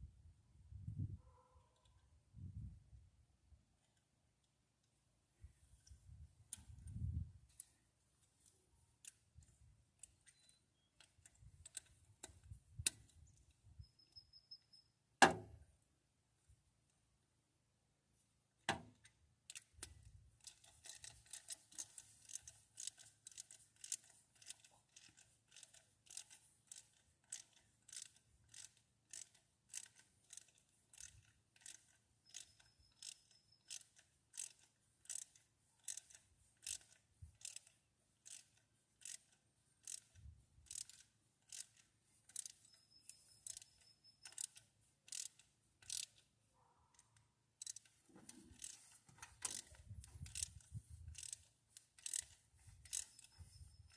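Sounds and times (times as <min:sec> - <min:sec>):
socket ratchet clicking: 0:18.7 - 0:46.3, 0:47.0 - 0:53.9.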